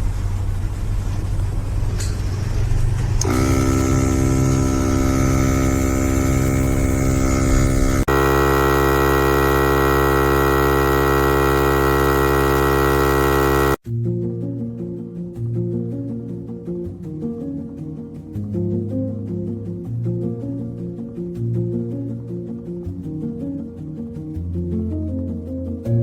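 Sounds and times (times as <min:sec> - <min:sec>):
air compressor humming: 0:03.2 - 0:13.8.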